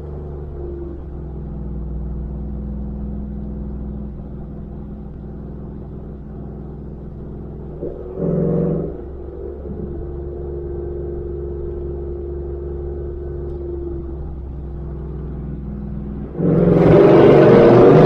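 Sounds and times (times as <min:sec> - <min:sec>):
pickup truck engine drone: 0:00.0 - 0:18.0
pitched exhaust burst: 0:16.3 - 0:18.0.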